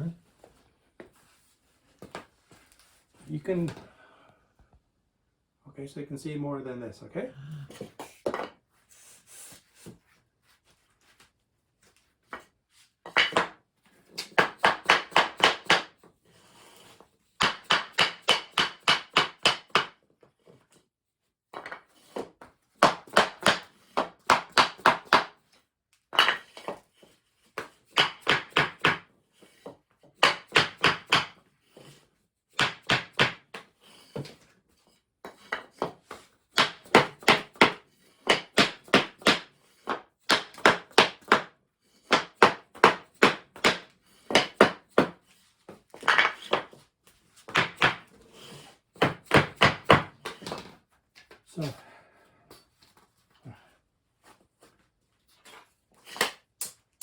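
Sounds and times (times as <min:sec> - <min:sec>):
hammer tapping wooden floor panels: 0:13.1 - 0:16.0, 0:17.4 - 0:20.0, 0:21.6 - 0:25.4, 0:26.1 - 0:26.8, 0:27.6 - 0:29.0, 0:30.2 - 0:31.4, 0:32.5 - 0:34.4, 0:35.3 - 0:41.5, 0:42.1 - 0:46.8, 0:47.4 - 0:48.2, 0:49.0 - 0:50.7.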